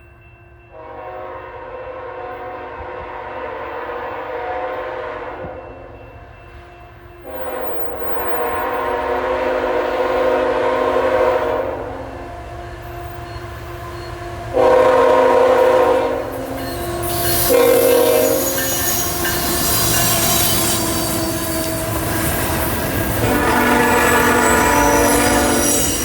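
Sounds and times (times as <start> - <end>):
train passing: 0.0 - 26.0
train horn blasts: 0.7 - 6.0, 6.6 - 12.6, 14.0 - 26.0
wheels squealing: 16.3 - 26.0.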